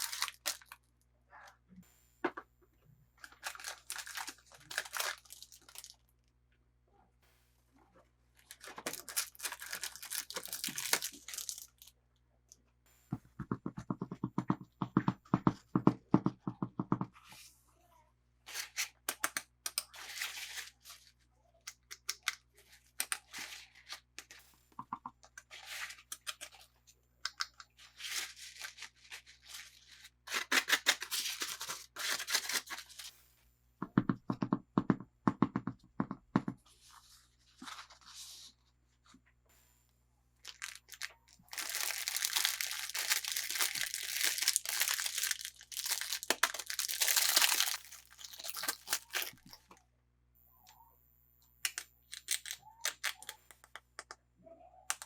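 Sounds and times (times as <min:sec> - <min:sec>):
packaging tearing and crinkling: 0:00.0 - 0:00.8, 0:03.2 - 0:06.0, 0:08.4 - 0:11.9, 0:28.0 - 0:33.1, 0:40.4 - 0:49.6, 0:52.1 - 0:53.4.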